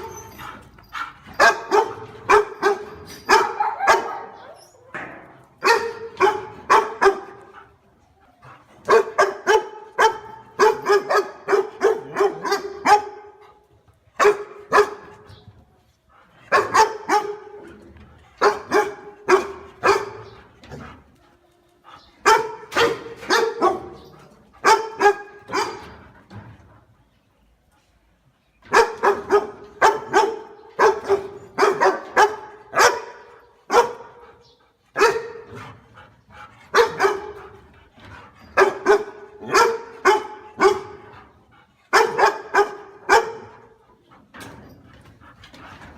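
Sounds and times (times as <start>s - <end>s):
dog barking: 1.4s - 4.6s, 5.6s - 7.5s, 8.9s - 13.4s, 14.2s - 15.1s, 16.5s - 17.6s, 18.4s - 20.3s, 22.2s - 24.0s, 24.6s - 25.9s, 28.7s - 34.2s, 35.0s - 35.5s, 36.7s - 37.4s, 38.6s - 41.1s, 41.9s - 43.8s.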